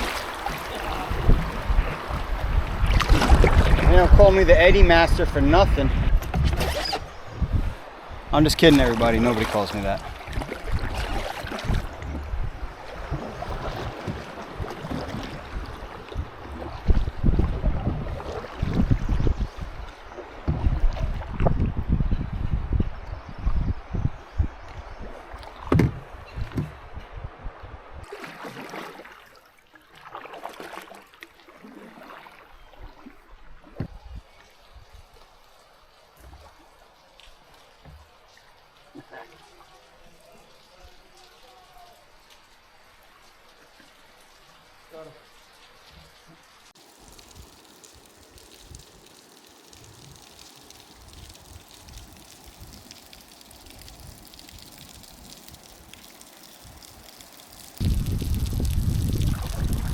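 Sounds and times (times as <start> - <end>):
paddle splashing through water: 0.0 - 21.6, 24.9 - 26.8, 28.0 - 34.4, 46.8 - 59.9
wind rumbling on microphone: 0.0 - 28.1, 47.1 - 59.9.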